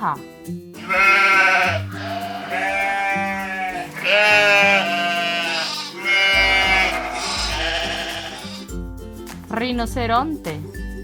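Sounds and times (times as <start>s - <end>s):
background music: 0.0s - 11.0s
sheep bleating: 0.8s - 8.7s.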